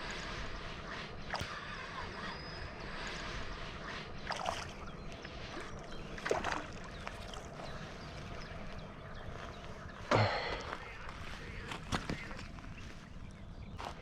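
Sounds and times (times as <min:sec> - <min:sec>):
steady outdoor hiss: 0:00.0 - 0:14.0
water splashing and sloshing: 0:02.6 - 0:09.5.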